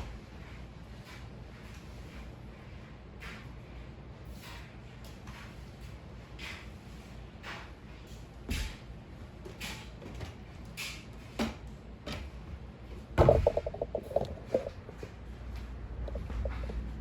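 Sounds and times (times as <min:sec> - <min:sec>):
sudden clatter: 0:13.2 - 0:15.0.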